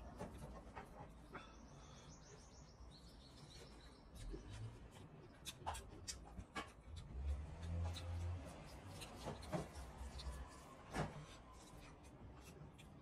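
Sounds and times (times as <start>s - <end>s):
wet clicks of eating by hand: 4.1s - 10.5s, 11.3s - 13.0s.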